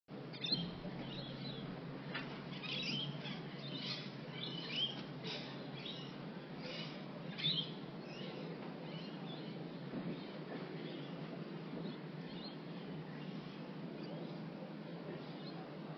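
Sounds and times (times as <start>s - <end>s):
low background hum: 0.1s - 15.9s
birds chirping and calling: 0.2s - 15.8s.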